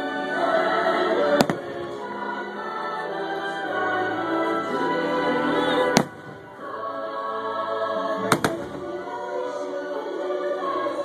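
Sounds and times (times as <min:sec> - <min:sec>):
music with choir singing: 0:00.0 - 0:11.0
fireworks bangs: 0:01.3 - 0:02.1, 0:05.9 - 0:06.7, 0:08.2 - 0:09.0.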